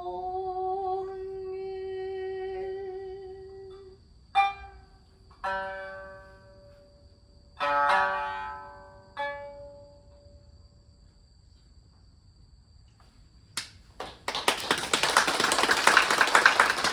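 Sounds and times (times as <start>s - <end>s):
audience applause: 14.0s - 16.9s.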